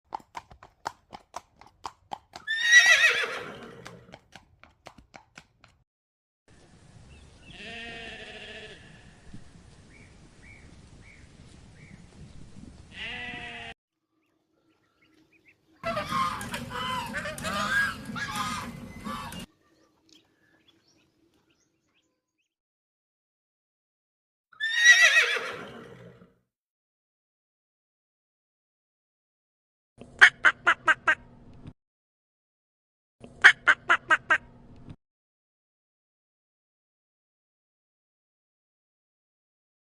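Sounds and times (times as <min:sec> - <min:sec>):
horse hoofbeats clopping: 0:00.1 - 0:05.8, 0:15.8 - 0:19.5
horse whinny: 0:02.4 - 0:04.1, 0:15.8 - 0:19.5, 0:24.6 - 0:26.3
bleat-like animal calls: 0:07.5 - 0:09.2, 0:12.9 - 0:13.8
overlapping farm animal calls: 0:15.8 - 0:19.5.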